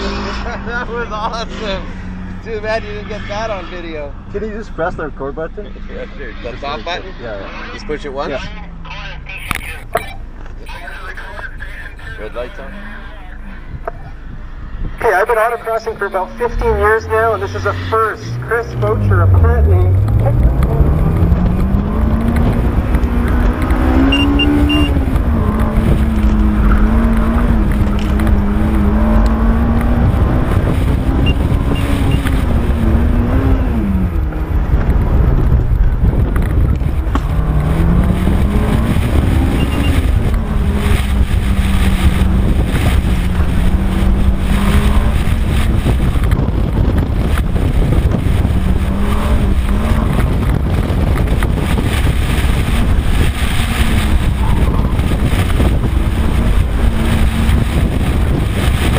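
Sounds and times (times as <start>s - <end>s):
car engine revving: 0.0s - 58.9s
road and wind noise: 0.0s - 58.9s.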